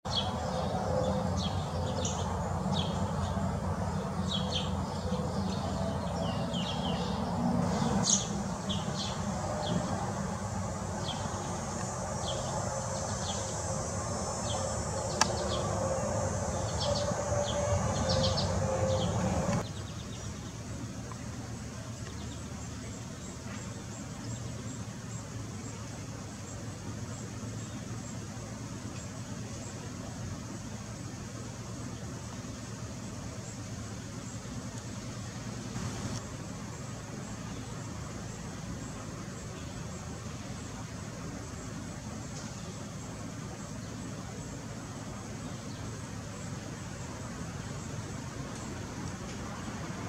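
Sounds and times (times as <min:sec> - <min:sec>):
small birds chirping: 0:00.1 - 0:30.6
low outdoor hum: 0:00.1 - 0:50.0
faint high ticks: 0:15.1 - 0:15.5.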